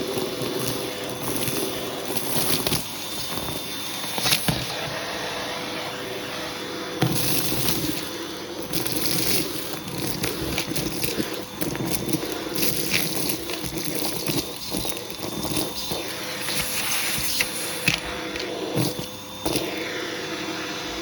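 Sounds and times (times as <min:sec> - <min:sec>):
vacuum cleaner running: 0:00.0 - 0:21.0
vacuum hose sucking on rug: 0:00.0 - 0:21.0.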